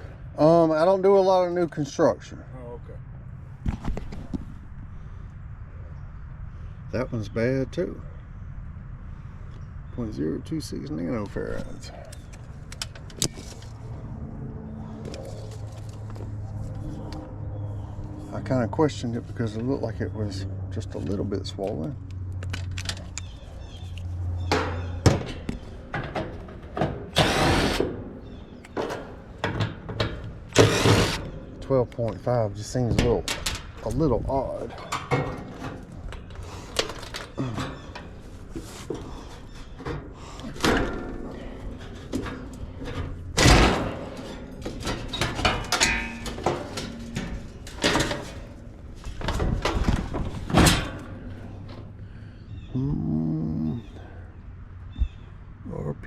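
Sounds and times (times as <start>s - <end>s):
parts and tools clattering: 22.4s - 51.9s
power drill running: 27.2s - 27.9s, 30.6s - 31.2s.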